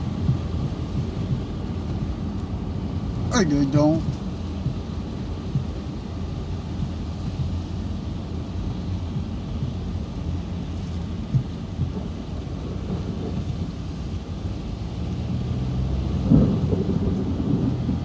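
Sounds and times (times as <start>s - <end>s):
distant thunder rolling: 11.2s - 18.0s.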